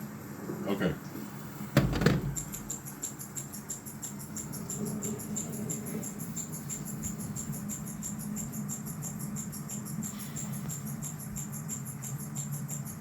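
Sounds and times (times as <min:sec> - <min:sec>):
knock: 0:01.8 - 0:02.7.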